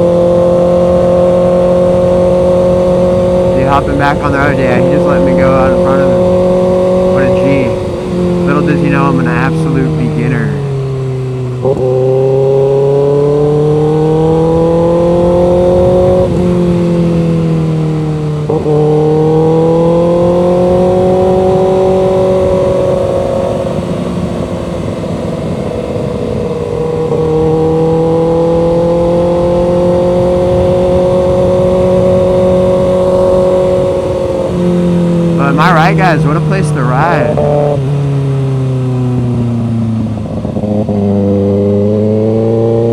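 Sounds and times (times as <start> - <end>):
motorcycle engine accelerating: 0.0 - 42.9
wind rush on microphone: 15.0 - 17.8.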